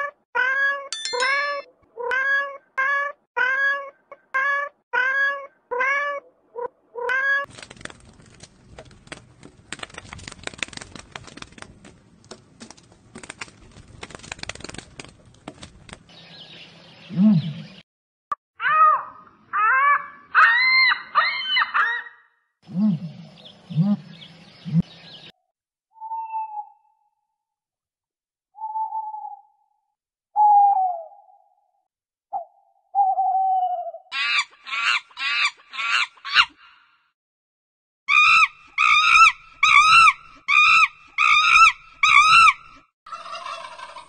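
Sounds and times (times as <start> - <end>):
crackling rustling noise: 7.5 - 16.1.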